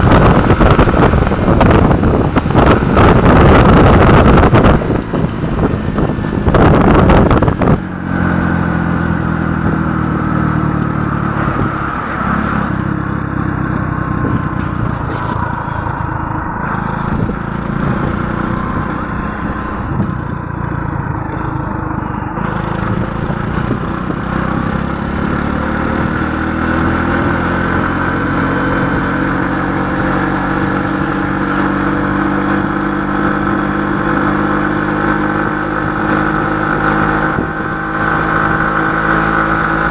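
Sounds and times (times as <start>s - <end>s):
engine running under load: 0.0s - 27.4s
wind buffeting microphone: 0.0s - 39.9s.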